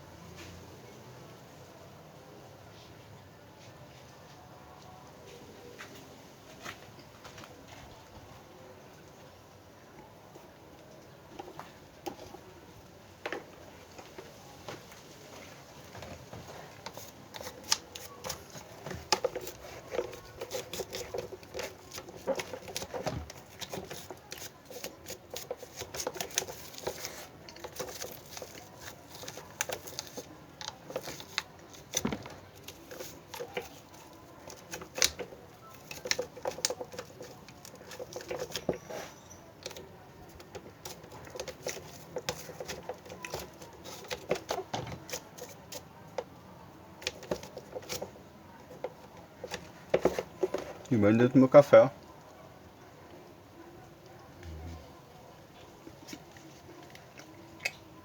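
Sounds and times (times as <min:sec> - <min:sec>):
plastic fan parts clicking and knocking: 0:15.9 - 0:38.9, 0:39.5 - 0:46.4, 0:47.0 - 0:51.9.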